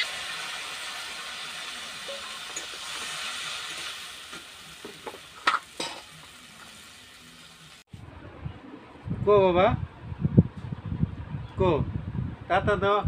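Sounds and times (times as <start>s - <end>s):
greens sizzling in a wok: 0.0s - 7.9s.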